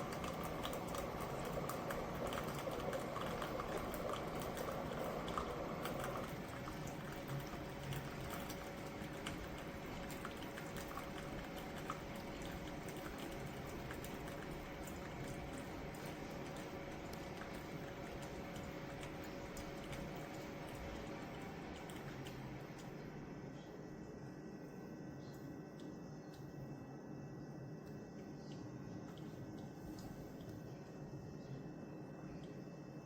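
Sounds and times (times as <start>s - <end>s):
coffee running into cup: 0.0s - 23.0s
faint steady hum: 0.0s - 33.0s.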